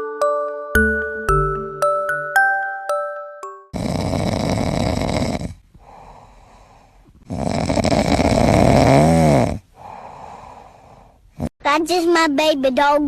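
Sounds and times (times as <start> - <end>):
puppy snoring: 3.8 - 11.5.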